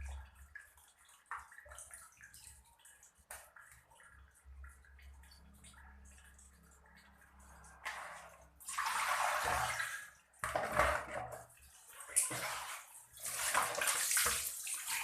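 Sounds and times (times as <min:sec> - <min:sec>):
water splashing and pouring: 0:00.0 - 0:15.0.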